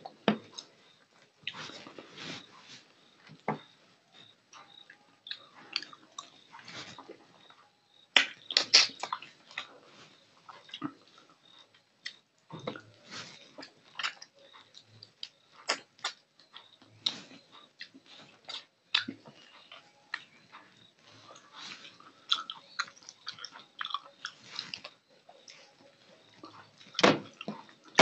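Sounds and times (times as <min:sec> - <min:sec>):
person chewing wet mouth clicks: 0:08.2 - 0:09.7, 0:13.6 - 0:16.2, 0:22.3 - 0:25.0.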